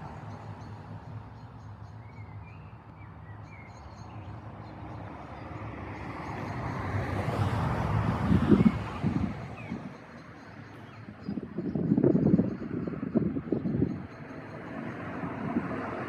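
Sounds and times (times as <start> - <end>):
car passing by: 4.5 - 10.0, 14.4 - 16.0.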